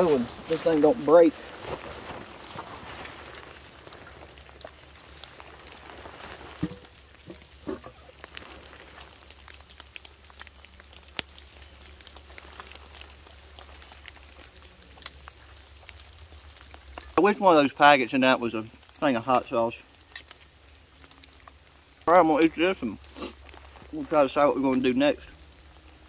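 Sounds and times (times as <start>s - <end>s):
light rain pattering: 0.0s - 26.0s
water drips: 0.0s - 26.0s.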